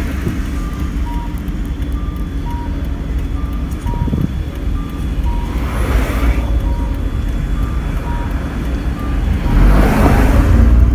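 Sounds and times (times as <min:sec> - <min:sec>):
rushing noise: 0:00.0 - 0:10.9
small car engine humming: 0:00.0 - 0:10.9
two-note electronic beep: 0:00.6 - 0:05.7, 0:06.5 - 0:09.7.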